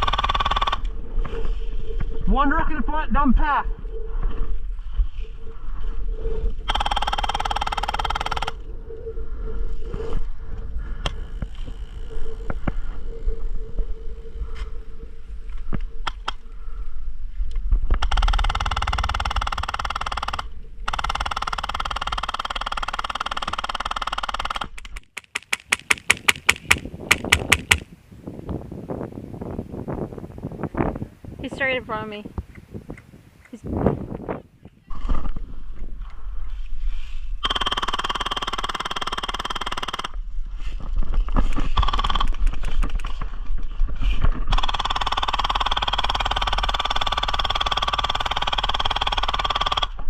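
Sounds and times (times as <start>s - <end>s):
wind buffeting microphone: 0.0s - 19.6s, 25.7s - 37.6s
rapid automatic airsoft gunfire: 44.5s - 49.9s.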